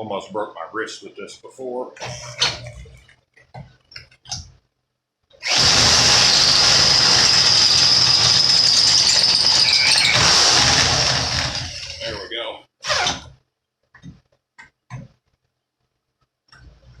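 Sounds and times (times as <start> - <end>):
power drill cutting metal: 5.4 - 13.2.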